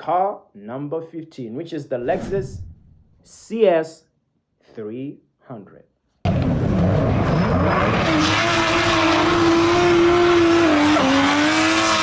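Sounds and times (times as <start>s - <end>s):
rushing noise: 2.1s - 3.2s
car engine revving: 6.8s - 12.0s.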